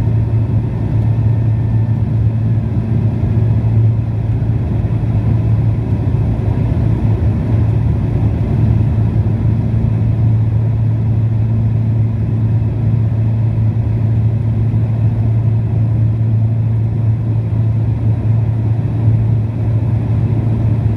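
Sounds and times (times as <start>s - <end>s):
turboprop engine drone: 0.0s - 20.9s.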